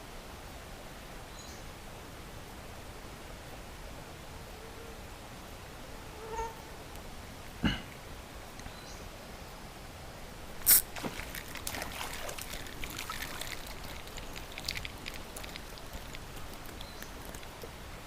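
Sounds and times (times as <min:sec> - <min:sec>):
loud water splash: 0:10.6 - 0:16.1
faint water trickle: 0:10.6 - 0:18.0
water dripping and spattering: 0:10.6 - 0:18.0.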